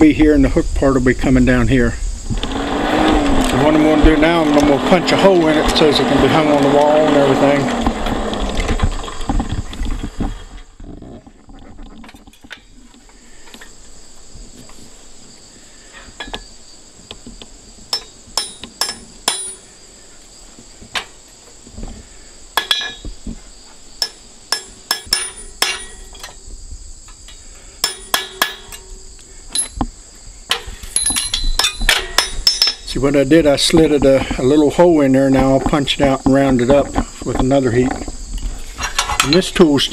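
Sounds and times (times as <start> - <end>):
insects chirring: 0.0 - 39.9
hammer striking punch into iron: 17.9 - 19.6, 24.0 - 26.1, 27.8 - 28.9.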